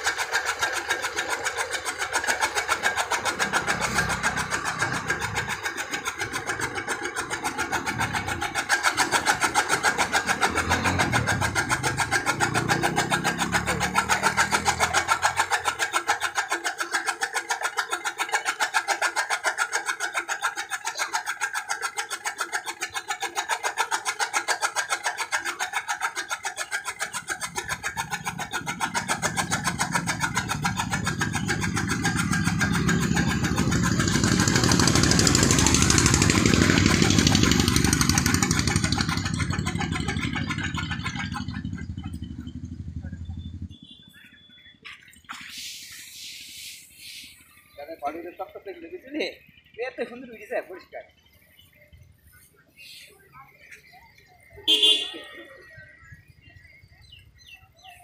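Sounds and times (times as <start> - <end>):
machine mechanical clatter: 0.0 - 45.4
deep machine rumble: 25.8 - 44.4.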